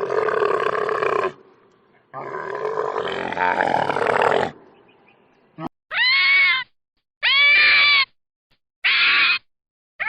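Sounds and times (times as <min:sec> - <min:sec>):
animal long rough call: 0:00.0 - 0:01.4, 0:02.2 - 0:04.6.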